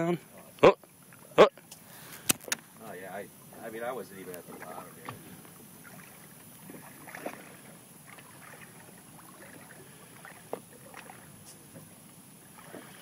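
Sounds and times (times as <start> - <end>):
water lapping: 0.0 - 13.0.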